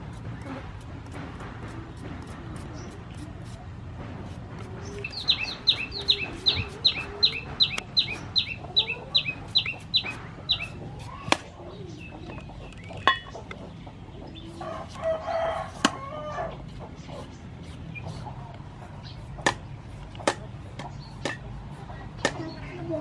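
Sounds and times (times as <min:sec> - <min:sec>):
potato peeling scraping: 0:00.0 - 0:11.6, 0:14.4 - 0:22.4
rooster crowing: 0:14.6 - 0:16.6.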